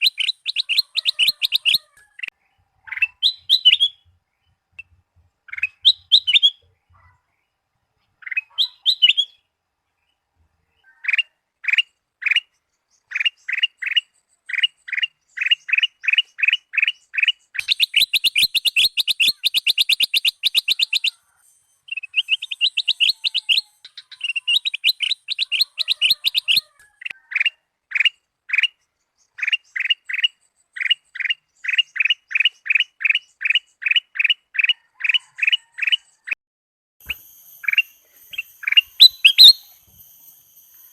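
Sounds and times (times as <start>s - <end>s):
bulbul singing sharp chirps: 0.0s - 1.8s, 2.9s - 4.0s, 5.5s - 6.6s, 13.1s - 21.2s, 21.9s - 26.6s, 37.0s - 40.9s.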